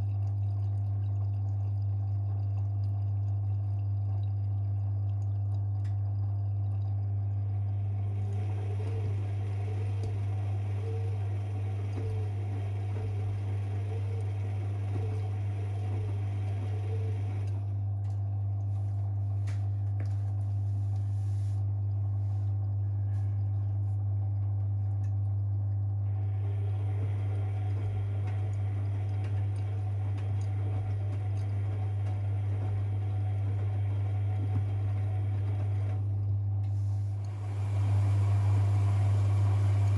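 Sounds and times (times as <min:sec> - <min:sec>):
washing machine humming: 0:00.0 - 0:39.9
washing machine drum turning: 0:26.5 - 0:36.0.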